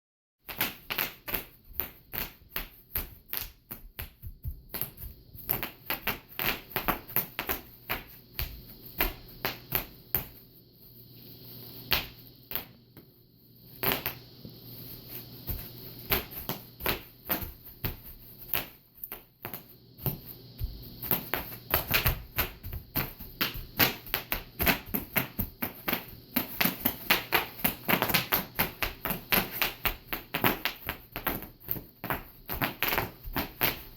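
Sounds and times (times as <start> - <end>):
bubble wrap popping: 15.4 - 33.9.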